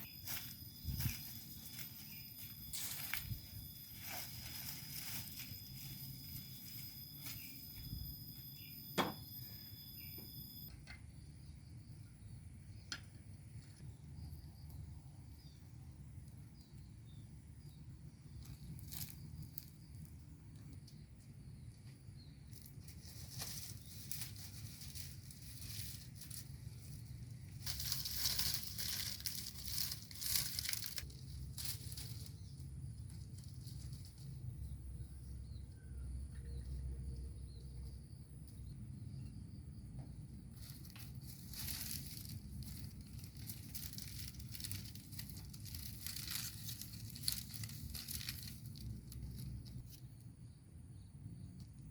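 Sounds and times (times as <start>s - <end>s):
leaves and plants rustling: 0.0s - 10.1s, 16.6s - 35.6s, 40.2s - 51.9s
steady high whine: 0.0s - 10.9s.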